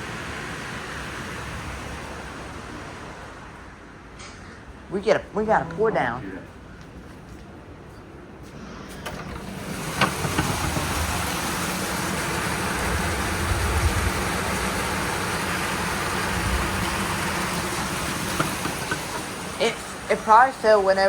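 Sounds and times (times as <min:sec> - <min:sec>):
heavy rain downpour: 0:09.4 - 0:21.0.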